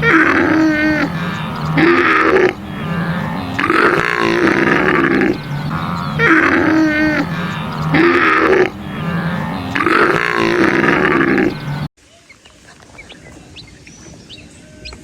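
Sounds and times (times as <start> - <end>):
animal calls: 0.0 - 15.0.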